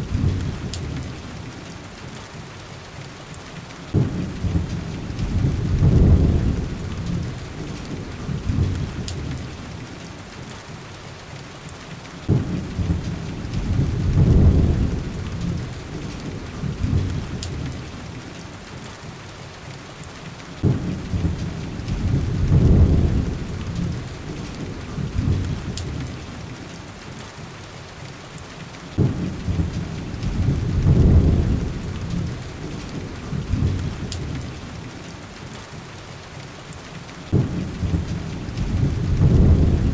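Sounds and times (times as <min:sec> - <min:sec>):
heavy rain: 0:00.0 - 0:39.9
rolling thunder: 0:03.9 - 0:09.7, 0:12.3 - 0:18.2, 0:20.6 - 0:26.6, 0:29.0 - 0:34.9, 0:37.3 - 0:39.9.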